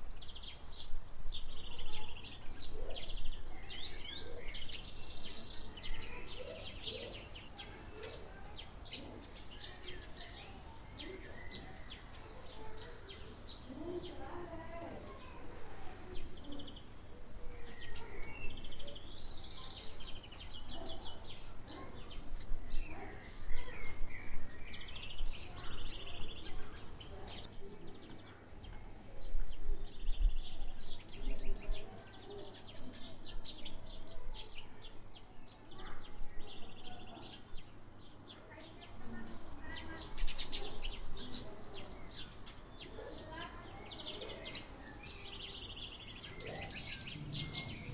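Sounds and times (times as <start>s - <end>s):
birds chirping and trilling: 29.7s - 47.9s.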